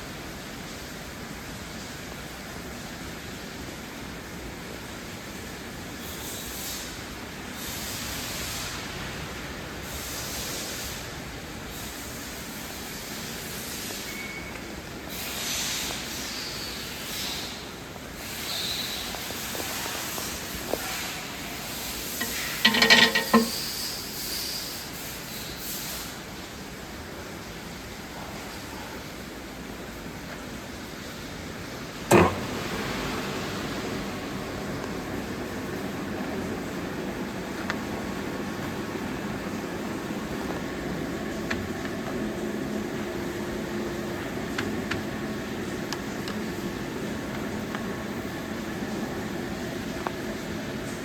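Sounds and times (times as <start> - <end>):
lathe humming: 21.7 - 23.9, 32.1 - 51.0
lathe metal parts clanking: 22.0 - 23.9, 32.1 - 32.7.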